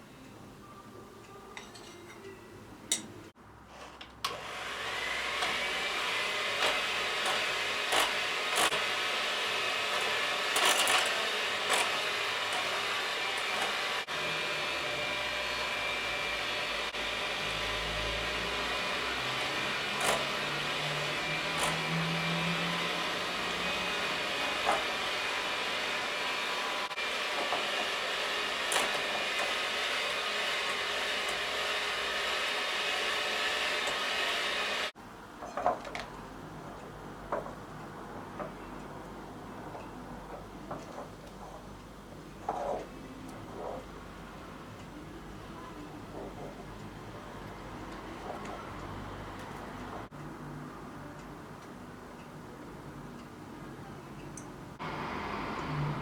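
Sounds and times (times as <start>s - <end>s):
electric hand mixer whining: 4.3s - 35.0s.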